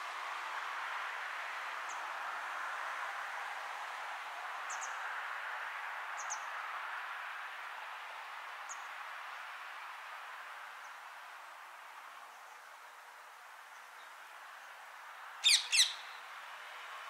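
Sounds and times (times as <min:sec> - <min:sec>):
steady background hiss: 0:00.0 - 0:17.0
bird high thin chirps: 0:15.4 - 0:16.2.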